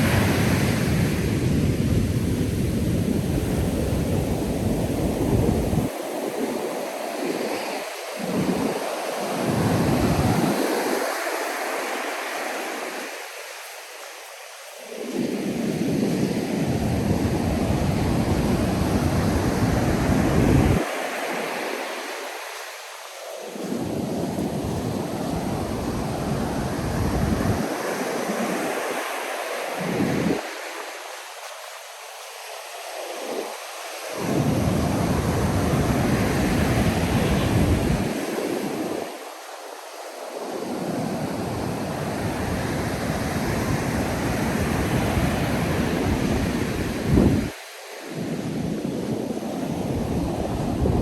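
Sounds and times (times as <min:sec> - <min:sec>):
wind buffeting microphone: 0:00.0 - 0:07.5, 0:15.0 - 0:20.9, 0:23.6 - 0:28.0, 0:34.2 - 0:39.0, 0:40.8 - 0:47.6, 0:48.2 - 0:51.0
ocean surf washing: 0:00.0 - 0:51.0.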